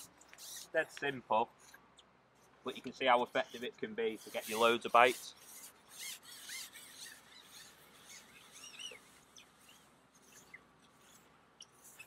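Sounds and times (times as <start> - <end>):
small birds chirping: 6.8 - 12.0.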